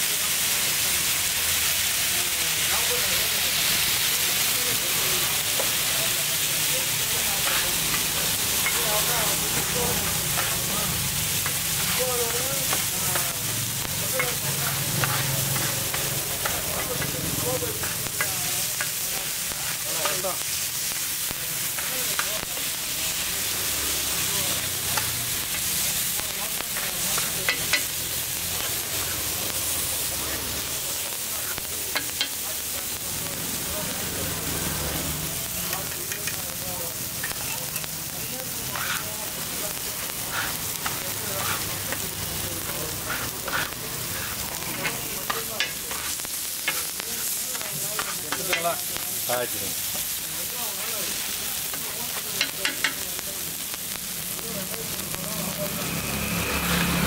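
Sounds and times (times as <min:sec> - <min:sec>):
meat sizzling on a griddle: 0:00.0 - 0:57.0
spatula scraping griddle: 0:04.7 - 0:29.8, 0:31.4 - 0:32.4, 0:35.7 - 0:36.6, 0:37.2 - 0:53.1
spatula tapping on griddle: 0:26.7 - 0:27.9, 0:31.9 - 0:32.4, 0:35.8 - 0:36.4, 0:47.5 - 0:48.8, 0:51.7 - 0:53.0.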